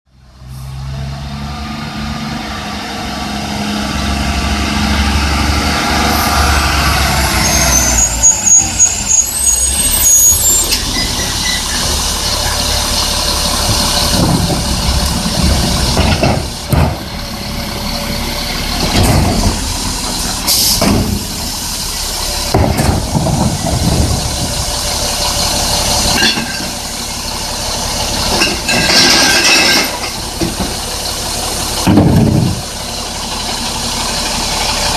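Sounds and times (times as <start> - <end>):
garbage truck engine running: 1.0 - 34.9
high squeal: 5.8 - 12.9
hissing or banging bursts: 18.8 - 24.9.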